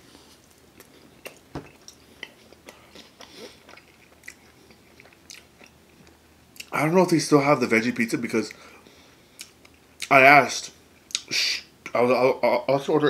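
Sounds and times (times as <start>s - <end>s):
close chewing with wet smacks: 0.5s - 6.8s.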